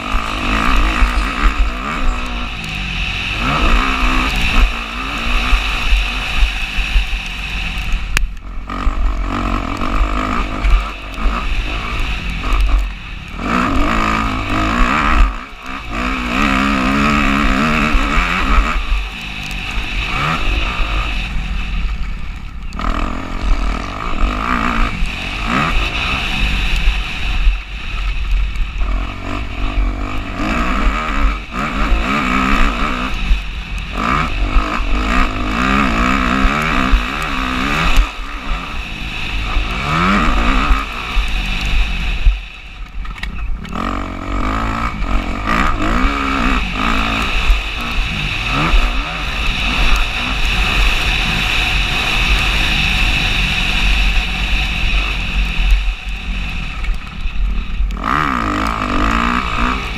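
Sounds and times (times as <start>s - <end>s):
motocross bike engine revving: 0.0s - 59.9s
wind rumble on microphone: 0.0s - 59.9s.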